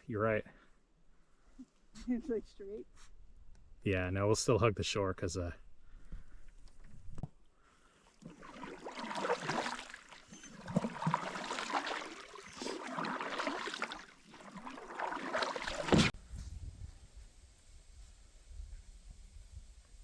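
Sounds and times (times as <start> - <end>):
canoe paddle splashing water: 8.1 - 16.2.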